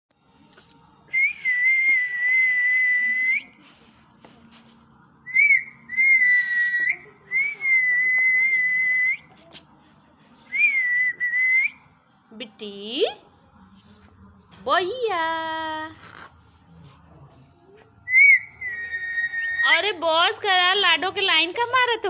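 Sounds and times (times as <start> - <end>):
parrot whistling: 5.3 - 7.0, 18.1 - 19.8.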